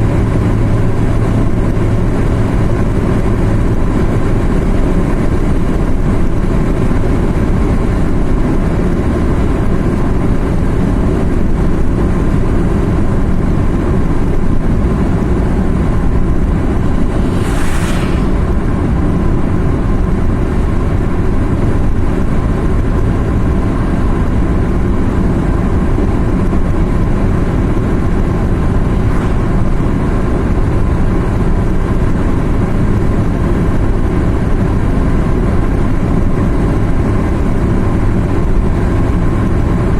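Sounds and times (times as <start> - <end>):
car engine and road noise: 0.0 - 39.9
brief hiss: 16.5 - 19.4.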